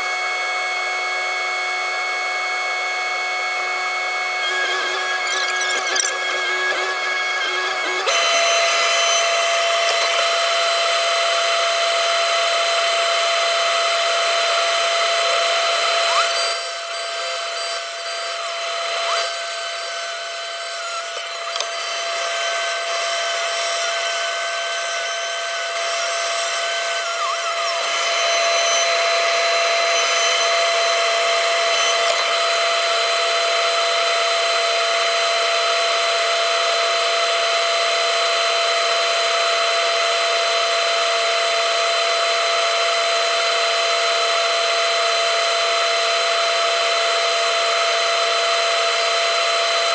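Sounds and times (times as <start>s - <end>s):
excavator machine whine: 0.0s - 35.1s
wavering higher whine: 13.4s - 32.6s.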